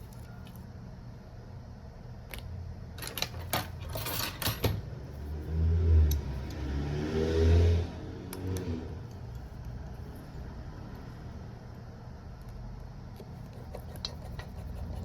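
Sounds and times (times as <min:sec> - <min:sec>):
low engine hum: 0:04.8 - 0:12.1.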